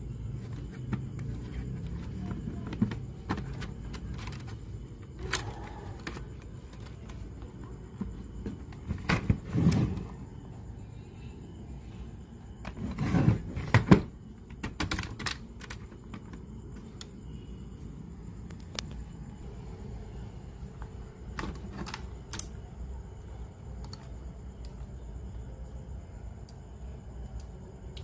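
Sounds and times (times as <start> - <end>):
steady low hum: 0.0 - 28.0
small parts and tools clicking: 21.4 - 22.6, 23.8 - 24.9.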